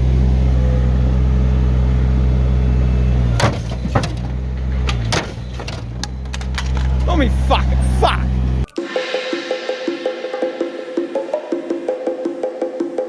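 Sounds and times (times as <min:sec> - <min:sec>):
earthmoving machine engine: 0:00.0 - 0:08.7
sharp knocks and scrapes: 0:03.3 - 0:07.1.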